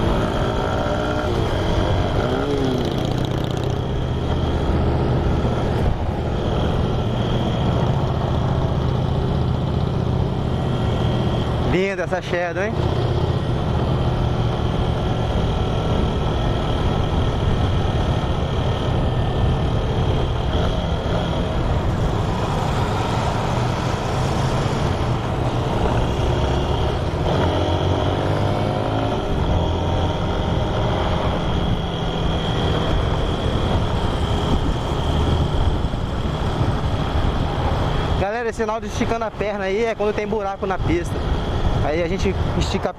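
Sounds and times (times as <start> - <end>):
motorcycle engine running: 0.0 - 38.4
road noise: 0.0 - 42.9
wind noise: 12.8 - 38.2.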